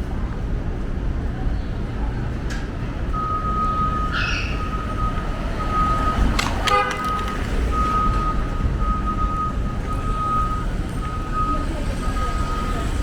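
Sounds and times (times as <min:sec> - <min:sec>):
street traffic rumble: 0:00.0 - 0:13.0
truck reversing alarm beeping: 0:03.1 - 0:13.0.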